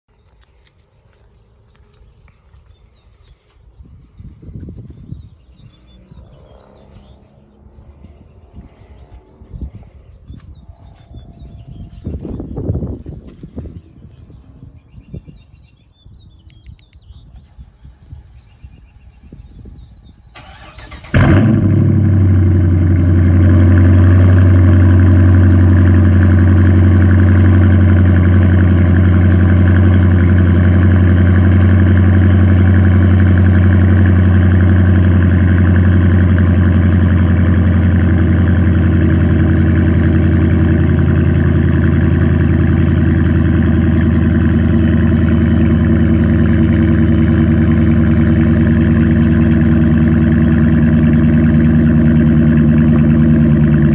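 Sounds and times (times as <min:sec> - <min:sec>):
car engine cranking and idling: 0:20.4 - 0:53.9.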